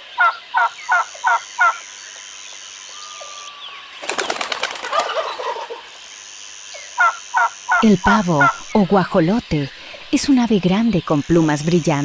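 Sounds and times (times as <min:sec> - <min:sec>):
turkey yelping and rattling calls: 0:04.0 - 0:06.1.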